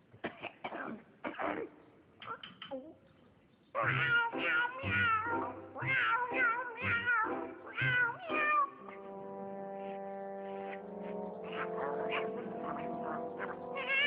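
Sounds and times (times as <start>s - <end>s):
cat meowing: 3.8s - 8.8s, 11.4s - 14.0s
music with long held notes: 3.9s - 14.0s.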